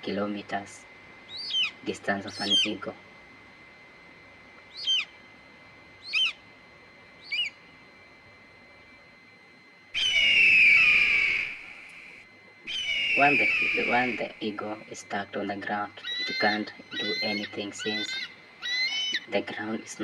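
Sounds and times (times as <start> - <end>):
bird calling: 1.2 - 3.0, 4.6 - 5.3, 6.0 - 6.4, 7.2 - 7.8, 10.0 - 15.0, 15.9 - 19.5.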